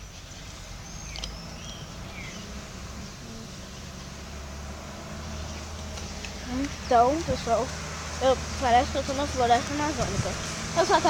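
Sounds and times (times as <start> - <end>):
faint bird chirps: 0.0 - 4.0.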